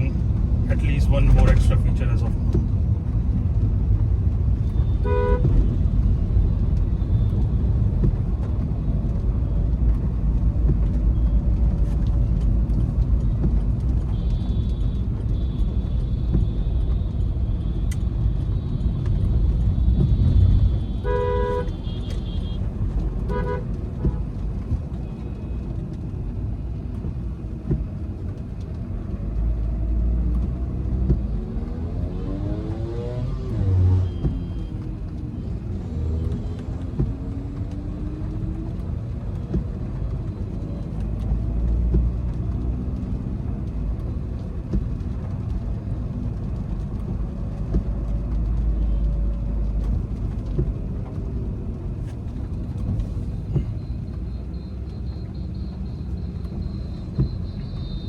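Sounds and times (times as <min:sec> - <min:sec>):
car engine rumble: 0:00.0 - 0:58.0
road noise: 0:00.0 - 0:58.0
car horn toots: 0:04.8 - 0:05.5, 0:20.2 - 0:22.6, 0:23.3 - 0:24.2, 0:53.6 - 0:58.0.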